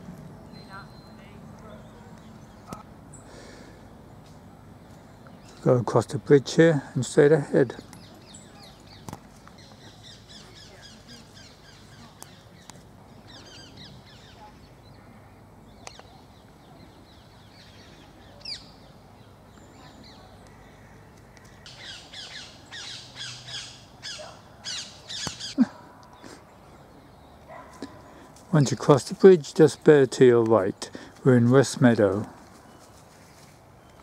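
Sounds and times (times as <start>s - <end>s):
faint high bird chirps: 0.4s - 2.8s.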